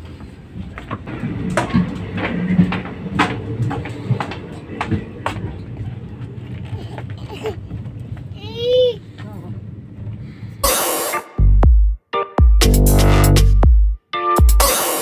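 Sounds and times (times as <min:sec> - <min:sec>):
train low rumble: 0:00.0 - 0:10.6.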